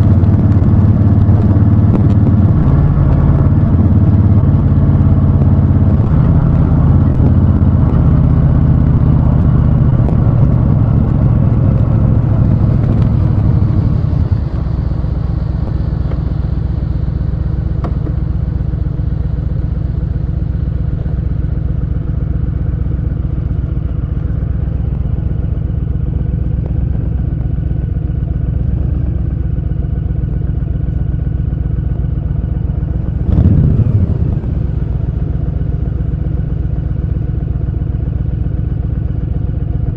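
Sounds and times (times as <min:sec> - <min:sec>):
motorcycle engine rev: 0:00.0 - 0:16.7, 0:32.9 - 0:36.7
motorcycle engine running: 0:00.0 - 0:39.9.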